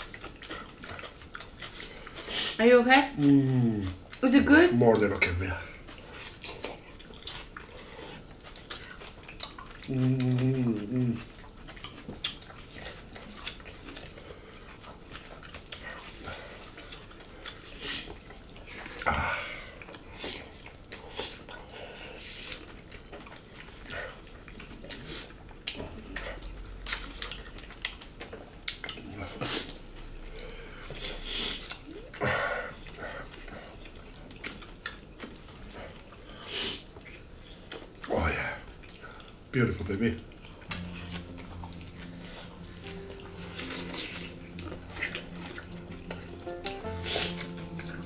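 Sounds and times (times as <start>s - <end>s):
lip smacks: 0.0s - 2.6s, 4.9s - 38.2s, 38.8s - 48.0s
wet chewing: 0.0s - 48.0s.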